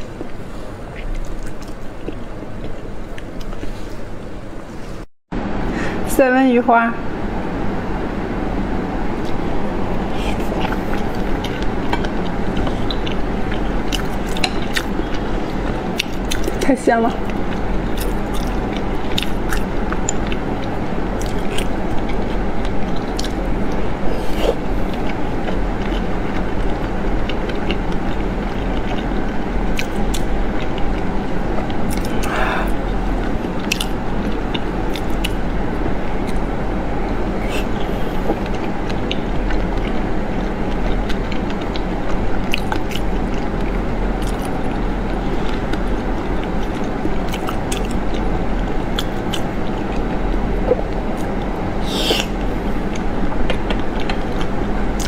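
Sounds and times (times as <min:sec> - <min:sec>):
chewing: 0:00.0 - 0:04.2, 0:09.2 - 0:55.0
low hum: 0:00.0 - 0:55.0
mouth clicks: 0:50.6 - 0:55.0.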